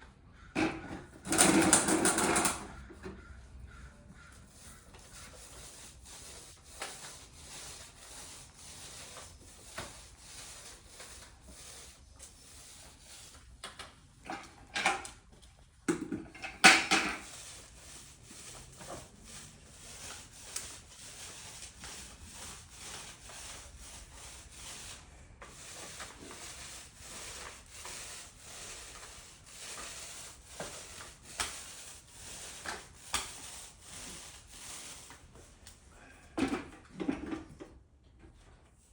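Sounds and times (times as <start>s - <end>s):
rubbing or scraping strokes: 3.7s - 13.5s, 16.5s - 35.5s.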